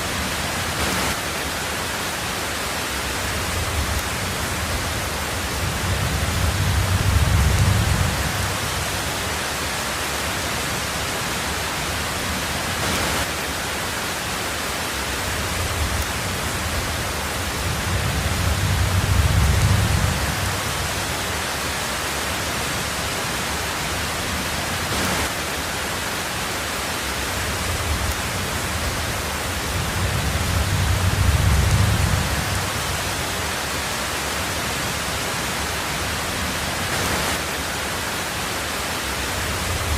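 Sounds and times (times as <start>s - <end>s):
heavy rain on a tin roof: 0.0s - 39.9s
low rumble of thunder: 3.3s - 9.2s, 15.4s - 21.4s, 27.4s - 33.4s.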